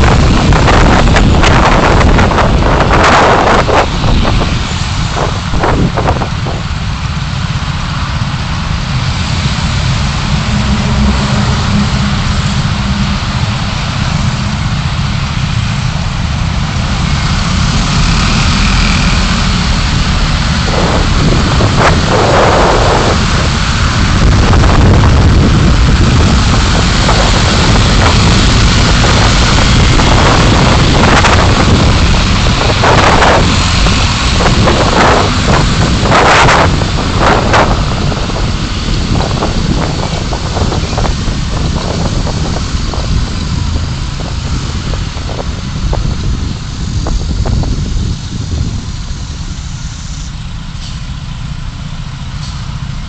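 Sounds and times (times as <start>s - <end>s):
car driving road noise: 0.0s - 53.0s
brief whooshing: 9.5s - 14.8s.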